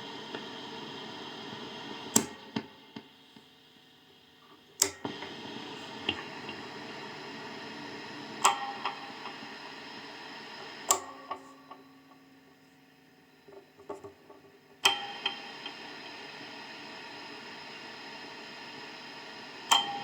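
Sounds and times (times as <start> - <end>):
faint hum: 0.0 - 20.0
guitar amplifier hiss: 0.0 - 20.0
switch clicks: 2.1 - 2.7, 4.8 - 5.3, 10.8 - 11.9.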